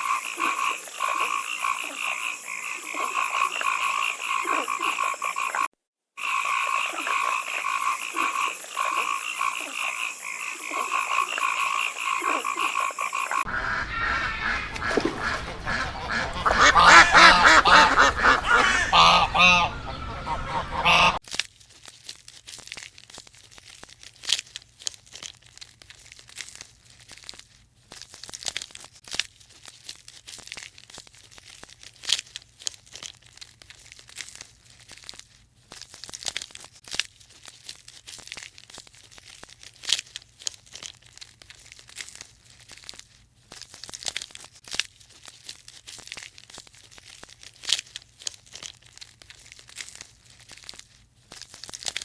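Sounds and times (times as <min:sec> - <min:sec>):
crisp crunching and rustling: 0:21.4 - 0:52.0.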